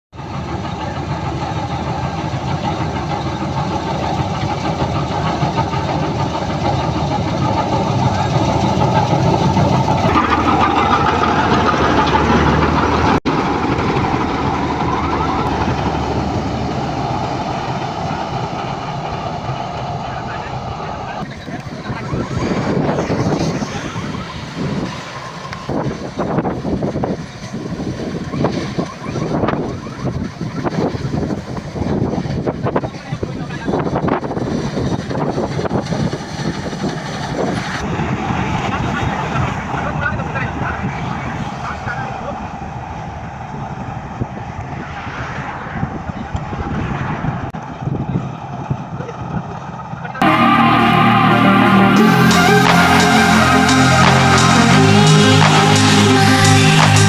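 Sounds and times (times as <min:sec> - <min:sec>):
combine harvester running: 0:00.2 - 0:57.0.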